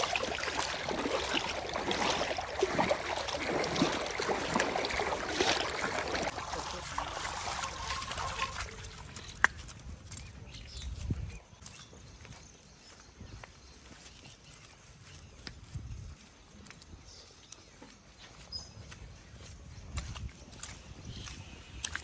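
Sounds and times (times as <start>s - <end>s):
mud and water splashing: 0.0s - 13.5s, 19.4s - 22.0s.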